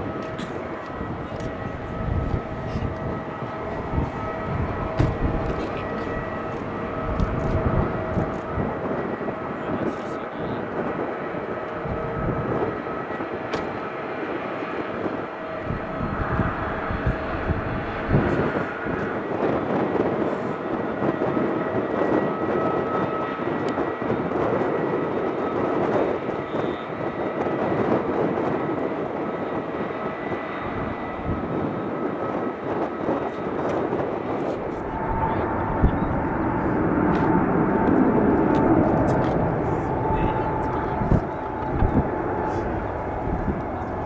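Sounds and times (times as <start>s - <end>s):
faint engine whine: 0.0s - 19.3s, 28.6s - 44.0s
jet engines rumbling: 0.0s - 44.0s.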